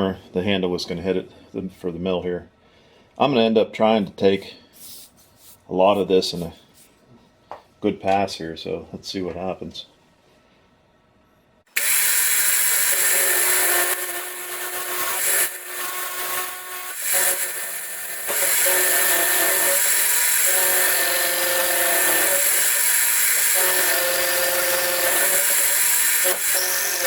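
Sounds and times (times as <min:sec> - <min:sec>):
milling machine cutting metal: 0:11.7 - 0:27.0.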